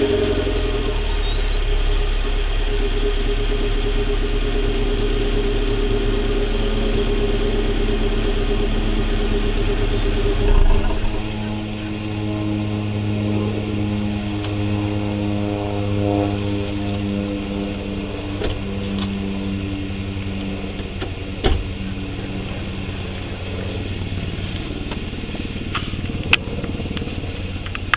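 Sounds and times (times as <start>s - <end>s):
car engine idling: 0.2s - 13.8s.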